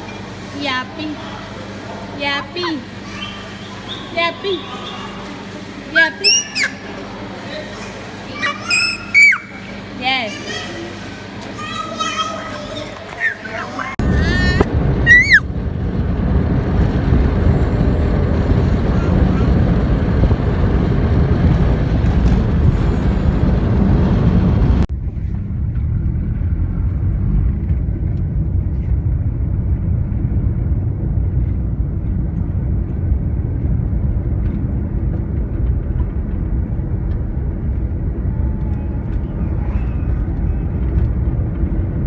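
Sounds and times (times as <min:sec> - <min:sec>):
car driving rumble: 0:13.8 - 0:42.0.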